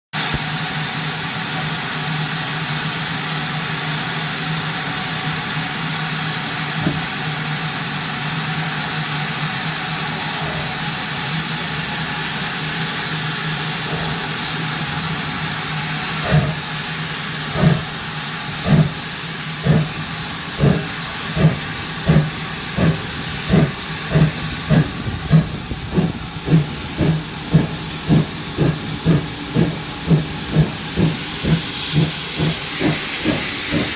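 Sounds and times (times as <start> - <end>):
steam locomotive exhaust beats: 0.2 - 33.9
steam locomotive hissing: 0.2 - 33.9.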